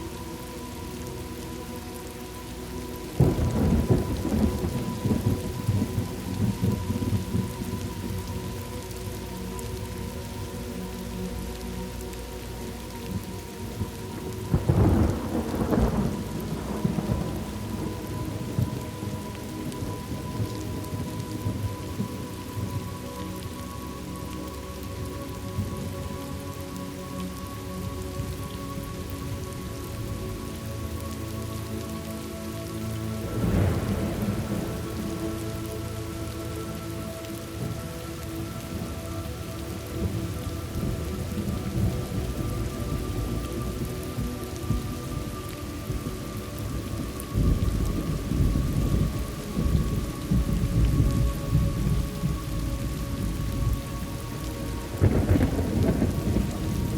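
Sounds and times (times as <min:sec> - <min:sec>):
steady rain: 0:00.0 - 0:56.9
thunder rolling: 0:03.2 - 0:08.2, 0:14.5 - 0:22.0, 0:33.2 - 0:35.6, 0:54.9 - 0:56.9.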